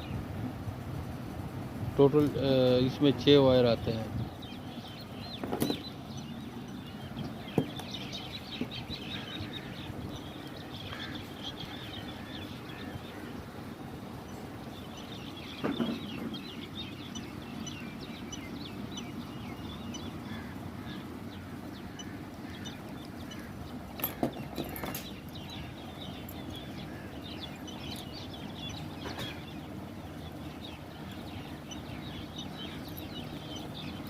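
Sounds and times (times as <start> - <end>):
birds chirping: 0.0 - 34.0
steady low hum: 0.0 - 34.0.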